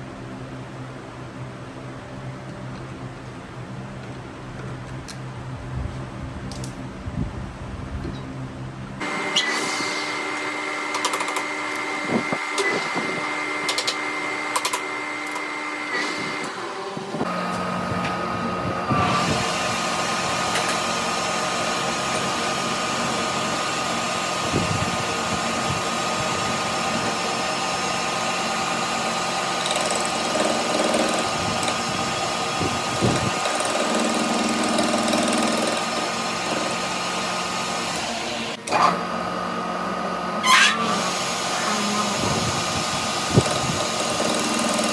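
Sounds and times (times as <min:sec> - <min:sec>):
electric power tool whining: 0:09.0 - 0:44.9.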